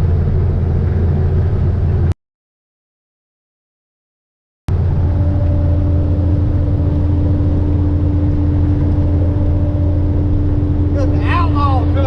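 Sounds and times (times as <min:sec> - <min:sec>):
diesel engine drone: 0:00.0 - 0:02.2, 0:04.7 - 0:12.0.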